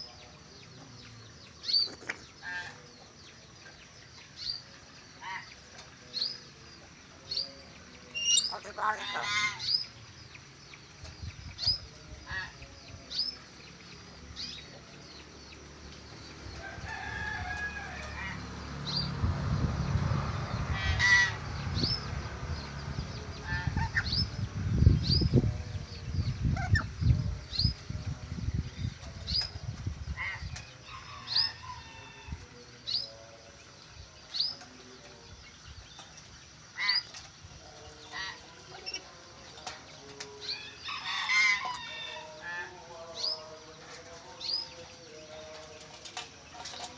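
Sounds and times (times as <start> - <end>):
birds chirping: 0.0 - 46.9
rooster crowing: 16.5 - 18.5, 40.6 - 42.8.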